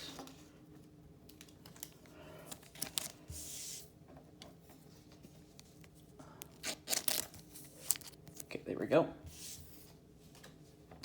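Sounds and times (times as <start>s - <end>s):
card and plastic sleeve crinkling: 1.3s - 3.2s, 5.6s - 8.6s.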